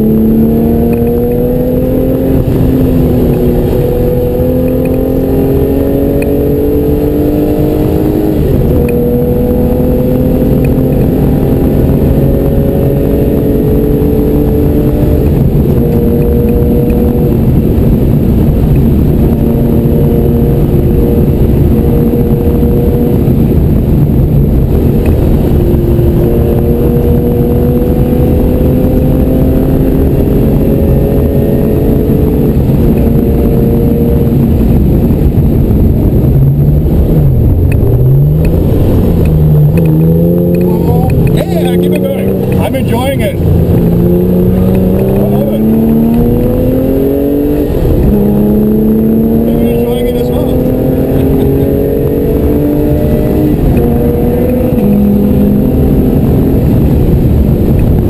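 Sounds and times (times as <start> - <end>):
car engine under hard load: 0.0 - 58.0
wind and road noise: 0.0 - 58.0.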